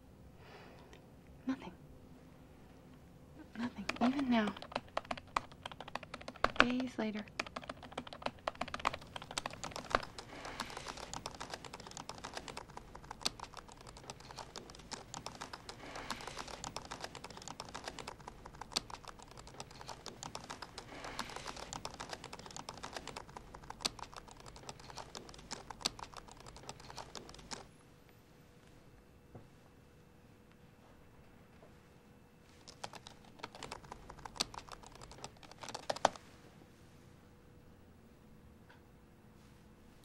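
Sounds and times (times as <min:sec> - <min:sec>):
fast typing on laptop keyboard: 0:03.6 - 0:27.7, 0:32.6 - 0:36.2.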